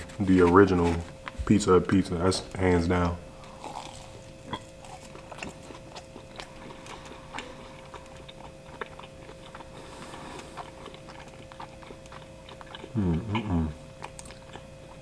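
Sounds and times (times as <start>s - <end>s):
person chewing with wet smacks: 3.4s - 15.0s.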